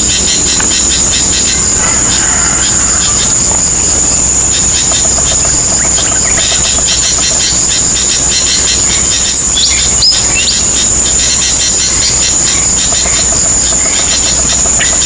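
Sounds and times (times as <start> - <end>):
insect chorus whine: 0.0 - 15.0.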